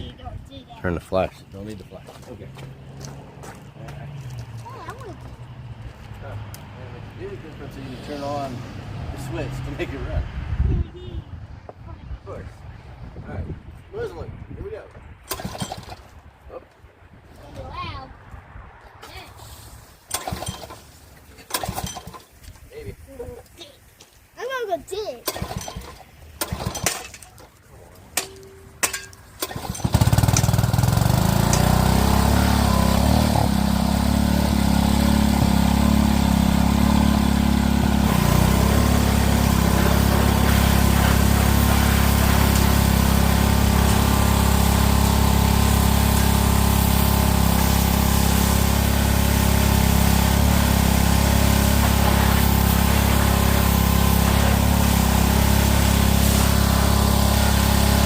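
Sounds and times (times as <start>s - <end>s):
small gas engine starting and running: 15.2s - 16.2s, 20.0s - 22.5s, 25.2s - 27.6s, 28.2s - 58.0s.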